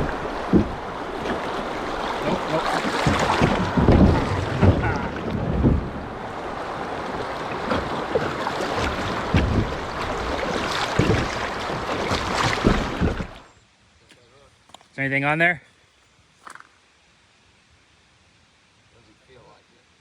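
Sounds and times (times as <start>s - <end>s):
low thumps: 0.0s - 6.1s, 8.8s - 13.4s
wind buffeting microphone: 0.0s - 13.4s
rushing river water: 0.0s - 13.6s.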